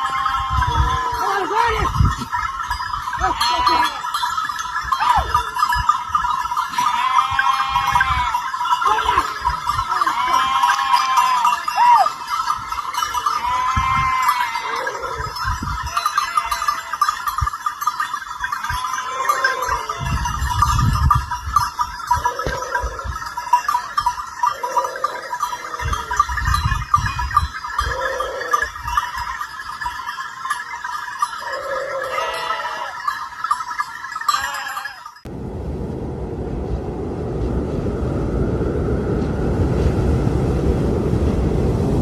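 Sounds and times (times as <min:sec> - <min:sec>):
sheep and goats bleating: 0:00.0 - 0:02.0, 0:03.2 - 0:04.2, 0:06.6 - 0:12.1, 0:13.0 - 0:17.4, 0:18.6 - 0:20.4, 0:27.8 - 0:28.8, 0:31.4 - 0:33.2, 0:34.3 - 0:35.2
neck bells jingling: 0:00.0 - 0:35.4
low rumbles: 0:35.3 - 0:42.0.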